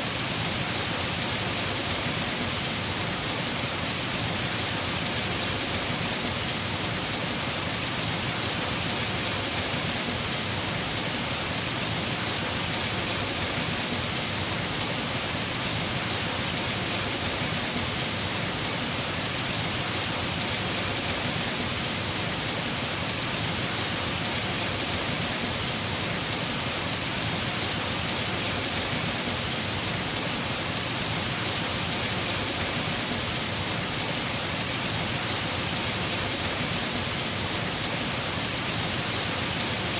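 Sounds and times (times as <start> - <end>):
heavy rain on roof: 0.0 - 39.9.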